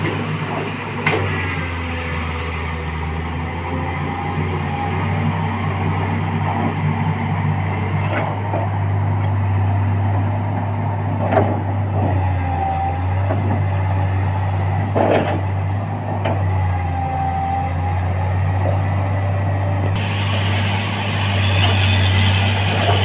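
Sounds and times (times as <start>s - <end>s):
excavator diesel engine running: 0.0s - 23.0s
brief whines: 20.0s - 23.0s.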